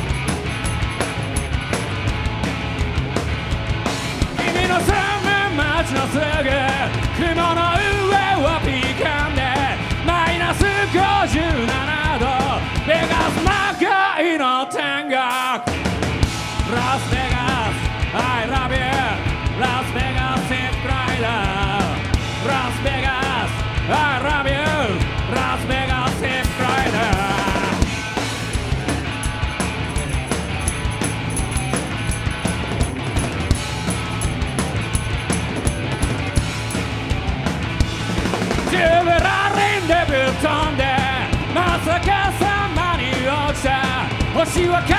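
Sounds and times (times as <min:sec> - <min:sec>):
live punk rock band: 0:00.0 - 0:44.9
shouted vocal: 0:13.0 - 0:16.3.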